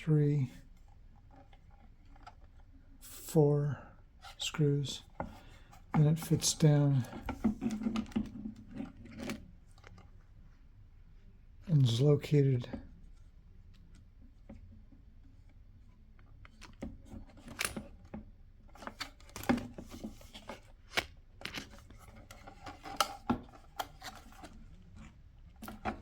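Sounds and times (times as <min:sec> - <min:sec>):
plastic parts clicking: 0:20.4 - 0:26.0.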